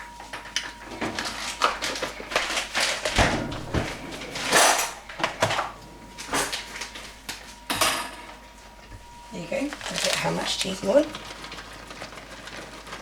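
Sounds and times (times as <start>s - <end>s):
kitchen utensils knocking and clinking: 3.4s - 5.6s.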